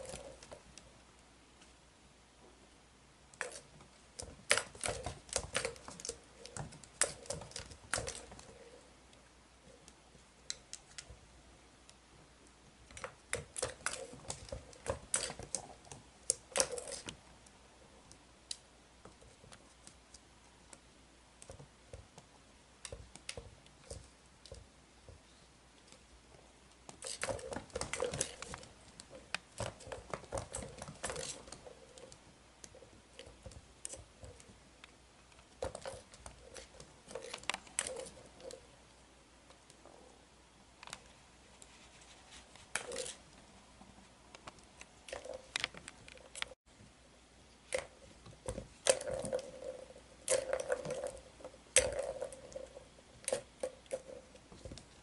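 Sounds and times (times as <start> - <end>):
toy clattering and clicking: 3.4 - 8.8, 12.9 - 17.1, 26.9 - 34.5, 35.5 - 38.6, 42.7 - 43.2, 47.7 - 55.0.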